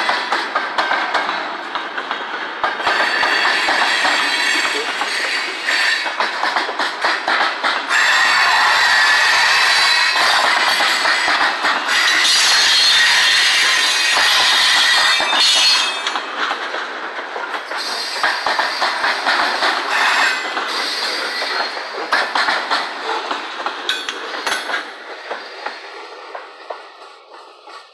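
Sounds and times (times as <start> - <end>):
freight train wheels on rails: 0.0 - 27.9.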